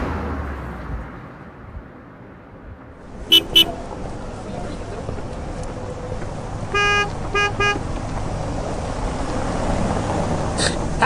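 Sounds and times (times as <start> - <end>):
vehicle horn beeps: 3.3 - 3.8.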